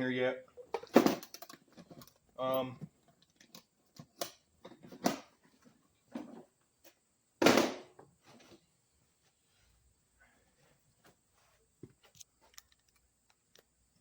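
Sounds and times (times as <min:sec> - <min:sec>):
items knocking and clicking: 0:00.6 - 0:02.2.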